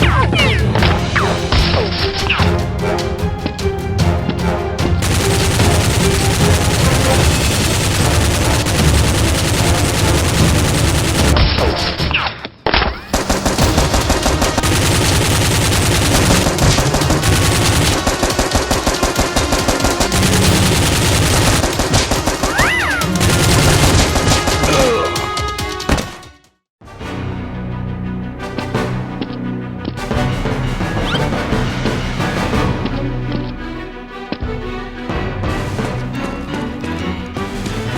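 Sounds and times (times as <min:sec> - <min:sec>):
rapid automatic gunfire: 0:05.0 - 0:11.9, 0:13.1 - 0:25.2.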